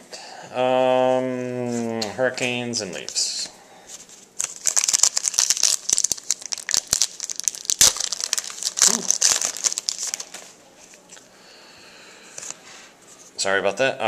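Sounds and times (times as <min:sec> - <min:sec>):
plastic wrapper crinkling and tearing: 0:04.4 - 0:11.2.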